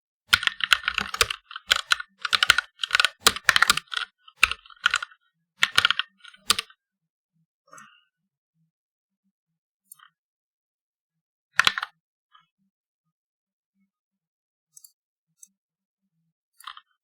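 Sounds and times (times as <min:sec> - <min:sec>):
mechanical keyboard typing: 0:00.3 - 0:06.7.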